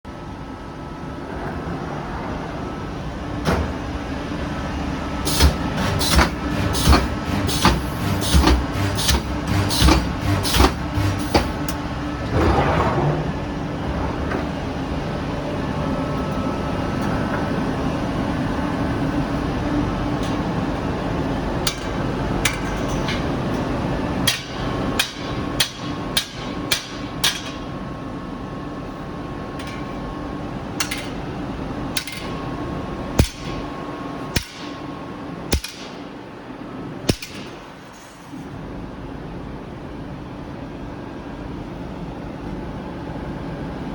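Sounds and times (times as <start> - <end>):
welding machine hum: 5.3 - 14.4.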